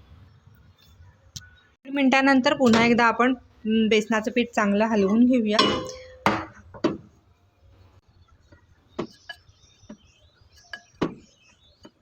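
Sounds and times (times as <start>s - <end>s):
spoon clinking against a bowl: 5.6s - 6.5s.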